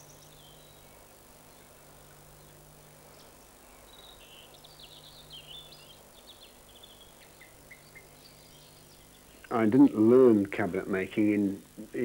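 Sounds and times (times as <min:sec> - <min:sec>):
songbird twittering: 0:00.0 - 0:09.5
steady low hum: 0:00.0 - 0:12.0.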